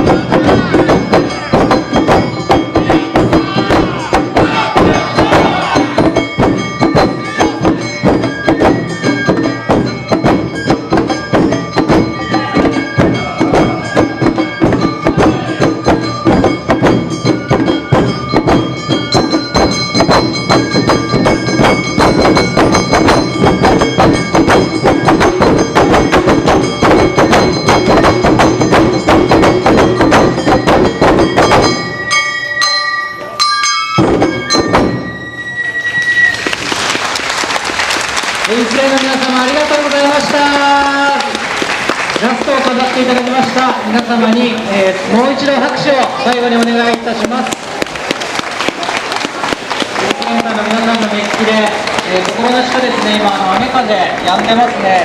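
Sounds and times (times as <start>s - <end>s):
sustained melody instruments: 0.0s - 37.0s
drums beating: 0.0s - 55.0s
festival band playing: 0.0s - 55.0s.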